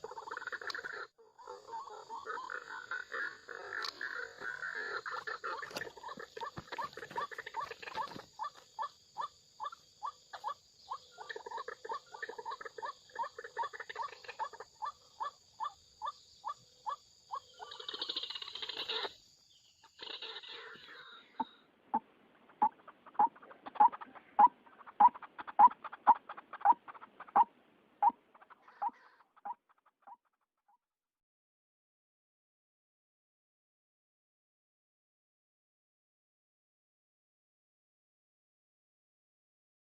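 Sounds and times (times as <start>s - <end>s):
bird croaking calls: 0.0s - 30.3s.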